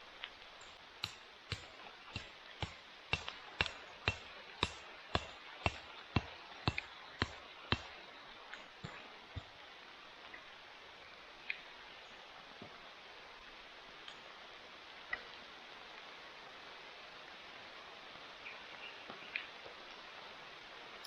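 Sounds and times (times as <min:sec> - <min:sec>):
rain hiss: 0:00.0 - 0:21.0
metal tool striking wood: 0:00.6 - 0:07.9.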